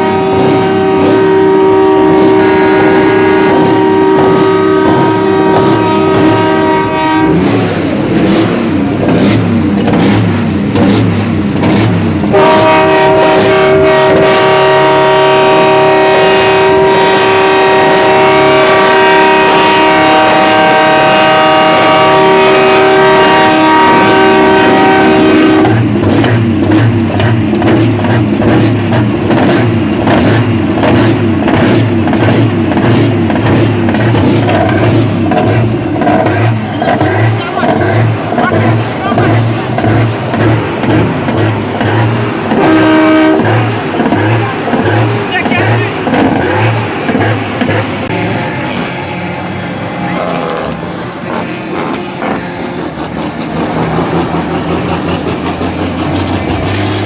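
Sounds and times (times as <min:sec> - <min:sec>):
truck air horns: 0:00.0 - 0:07.7, 0:12.3 - 0:25.9, 0:33.9 - 0:53.0
truck diesel engine running: 0:00.0 - 0:57.0.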